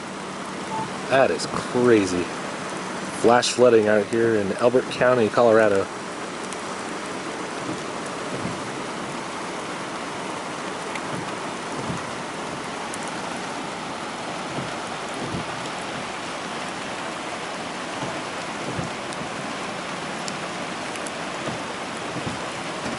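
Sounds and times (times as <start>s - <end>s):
heavy rain: 0.0s - 22.9s.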